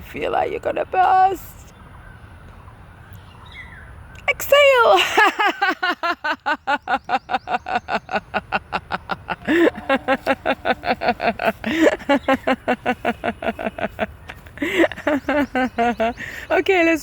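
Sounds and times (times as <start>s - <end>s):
person laughing rhythmically: 5.0s - 16.5s.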